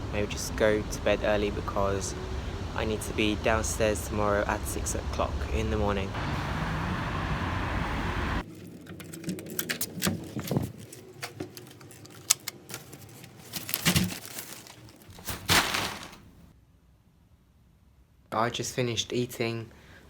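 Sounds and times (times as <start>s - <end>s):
paper packaging crinkling: 8.4s - 16.5s.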